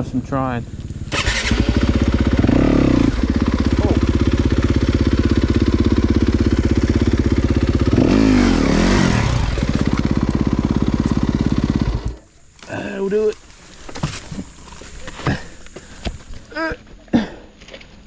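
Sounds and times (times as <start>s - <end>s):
dirt bike engine revving: 0.0s - 12.3s.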